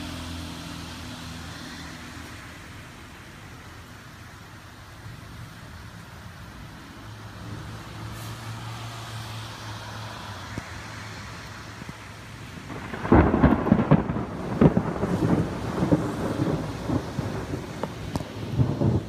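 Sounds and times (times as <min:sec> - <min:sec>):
rain hissing: 0:00.0 - 0:19.0
crackling thunderclap: 0:11.8 - 0:19.0.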